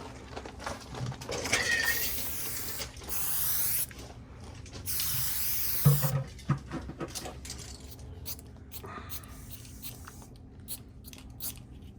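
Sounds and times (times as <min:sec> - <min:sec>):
spray paint can spraying: 0:01.8 - 0:03.9, 0:04.8 - 0:06.2, 0:07.9 - 0:11.6.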